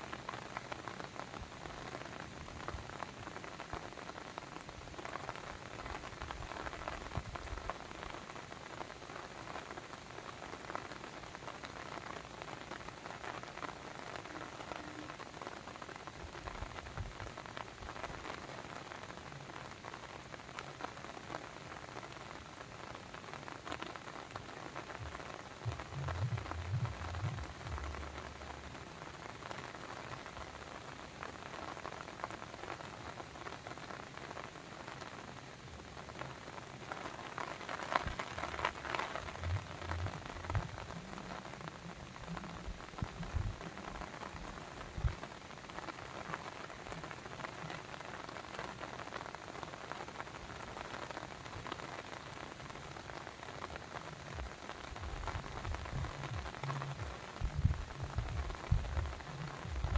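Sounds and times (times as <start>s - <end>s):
low rumble: 25.0s - 28.8s, 39.2s - 41.4s, 42.0s - 44.0s, 54.4s - 59.9s
water dripping and splashing: 25.0s - 28.8s, 37.9s - 45.2s, 54.4s - 59.9s.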